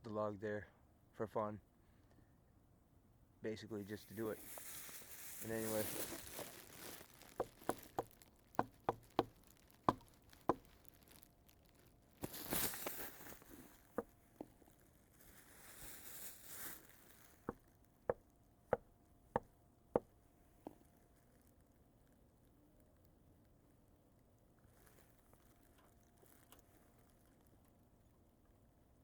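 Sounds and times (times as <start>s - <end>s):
rustling noise: 3.8s - 17.8s.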